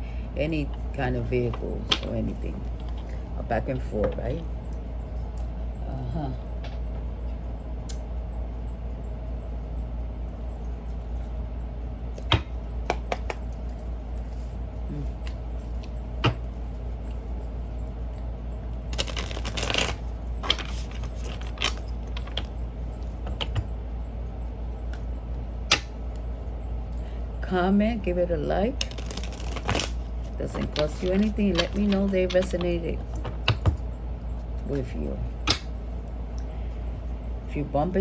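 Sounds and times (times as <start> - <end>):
low hum: 0.0 - 38.0
cards fluttering: 18.9 - 22.5, 28.8 - 32.6.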